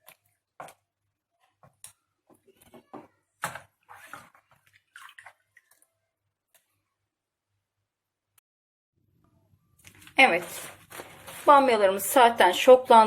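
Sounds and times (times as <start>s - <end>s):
water splashing and dripping: 4.4s - 5.9s.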